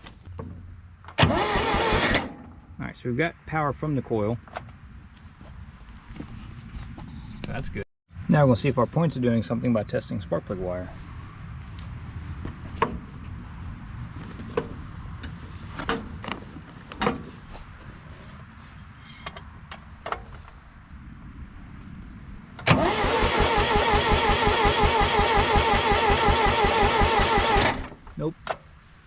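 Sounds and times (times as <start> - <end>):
starter cranking engine: 1.2 - 2.3, 22.6 - 28.0.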